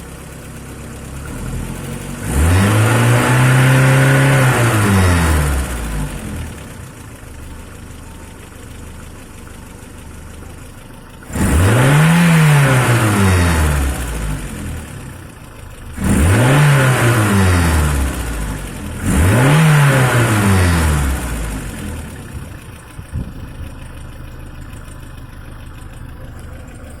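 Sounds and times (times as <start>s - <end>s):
outboard motor idling and revving: 0.0s - 27.0s.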